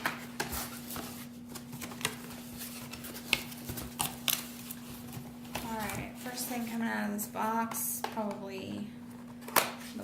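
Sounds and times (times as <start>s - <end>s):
cardboard packaging rustling: 0.0s - 7.0s
faint steady hum: 0.0s - 10.0s.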